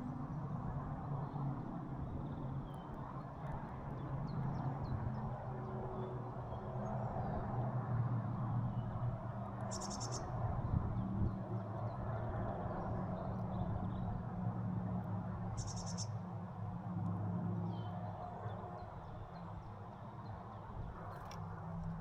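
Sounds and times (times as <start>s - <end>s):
small birds chirping: 9.7s - 10.2s, 15.6s - 16.1s.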